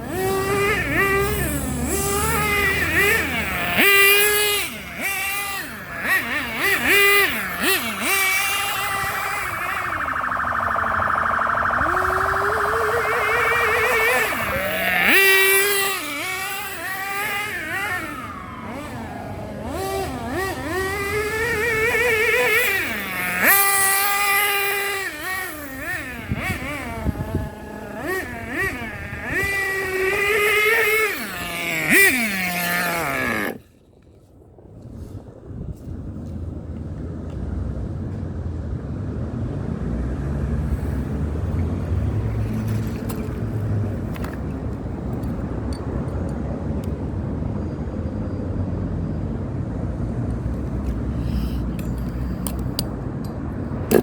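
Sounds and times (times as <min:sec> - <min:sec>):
rc car engine revving: 0:00.0 - 0:33.7, 0:50.9 - 0:52.7.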